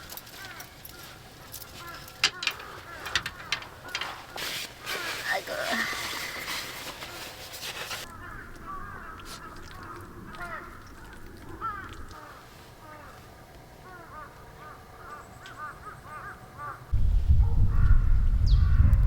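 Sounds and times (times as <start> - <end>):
birds calling: 0.0 - 16.9
loud low rumble: 16.9 - 19.0.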